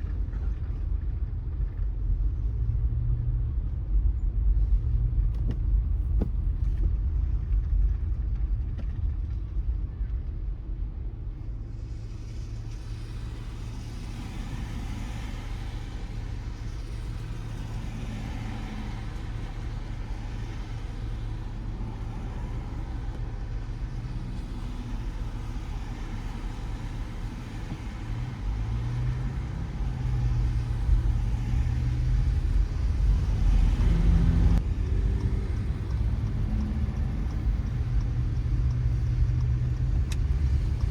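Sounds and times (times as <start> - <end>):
car engine and tyres rumbling: 0.0 - 40.9
rain: 6.9 - 40.9
wet tyres hissing: 11.7 - 40.9.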